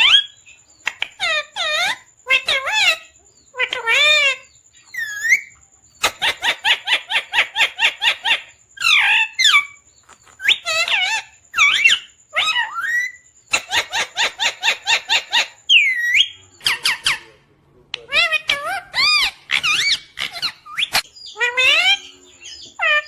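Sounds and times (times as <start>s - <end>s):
parrot chirping: 0.0s - 23.0s
parrot whistled calls: 10.4s - 17.3s, 18.1s - 23.0s.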